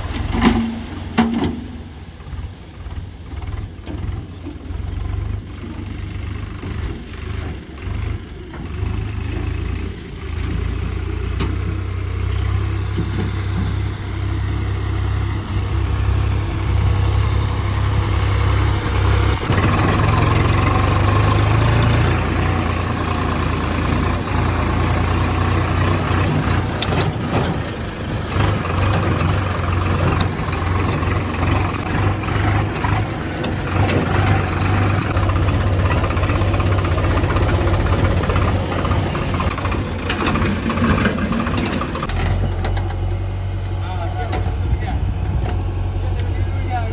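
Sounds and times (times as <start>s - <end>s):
diesel machinery engines rumbling: 0.0s - 46.9s.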